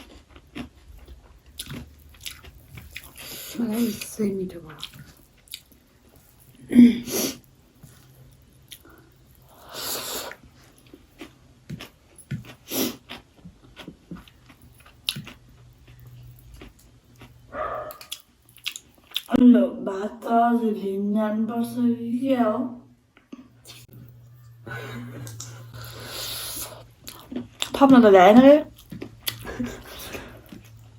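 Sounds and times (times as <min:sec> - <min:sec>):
person chewing food: 0:00.0 - 0:06.7, 0:07.3 - 0:19.3, 0:23.1 - 0:27.8, 0:28.7 - 0:30.9.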